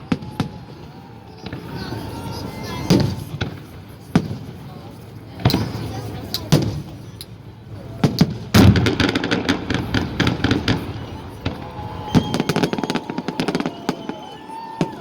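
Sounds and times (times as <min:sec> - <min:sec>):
firework bangs: 0:00.0 - 0:07.2, 0:07.8 - 0:15.0
crackling firework pops: 0:05.4 - 0:07.4, 0:08.0 - 0:15.0.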